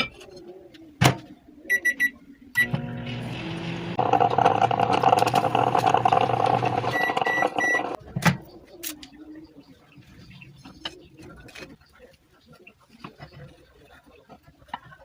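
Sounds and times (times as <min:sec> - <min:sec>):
microwave oven humming: 0:02.6 - 0:08.0.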